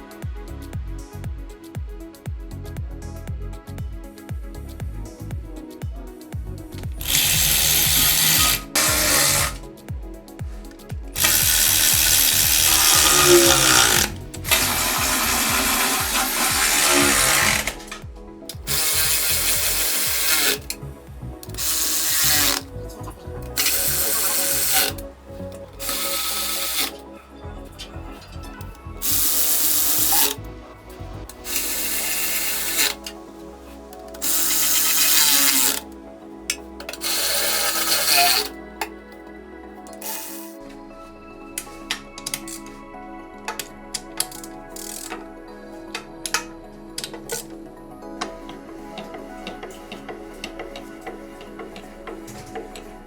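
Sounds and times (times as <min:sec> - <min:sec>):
power tool running in bursts: 0:07.0 - 0:09.6, 0:11.2 - 0:18.0, 0:18.7 - 0:20.8, 0:21.5 - 0:22.7, 0:23.6 - 0:25.0, 0:25.8 - 0:27.0, 0:29.0 - 0:30.4, 0:31.5 - 0:33.1, 0:34.2 - 0:35.8, 0:37.0 - 0:38.5.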